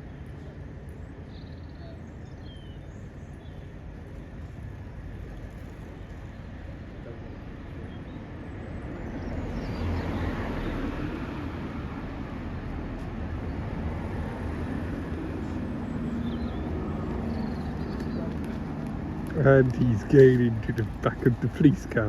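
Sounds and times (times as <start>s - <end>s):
vehicle passing with tyre noise: 8.3s - 22.0s.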